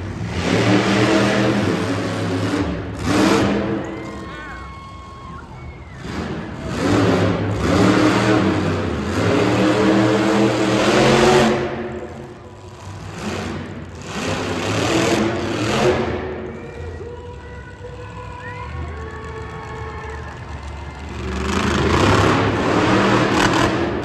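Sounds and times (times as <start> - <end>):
monster truck engine revving: 0.0 - 24.0.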